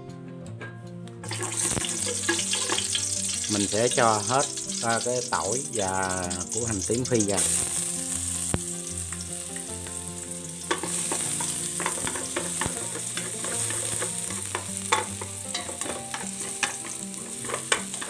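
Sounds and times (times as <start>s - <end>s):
garlic sizzling in hot oil: 1.2s - 18.0s
utensil scraping metal pot: 1.3s - 3.5s, 10.6s - 18.0s.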